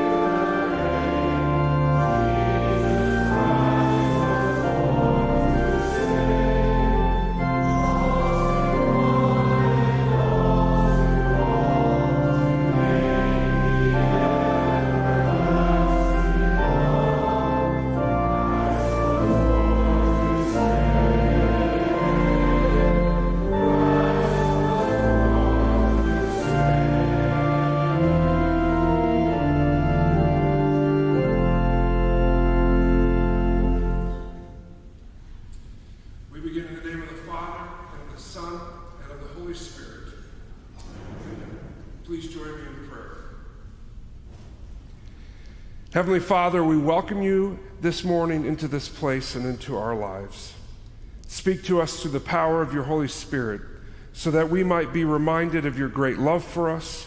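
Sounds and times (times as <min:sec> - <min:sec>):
voices singing a hymn: 0:00.0 - 0:34.8
organ playing chords: 0:00.0 - 0:35.0, 0:45.3 - 0:50.6, 0:51.3 - 0:57.0.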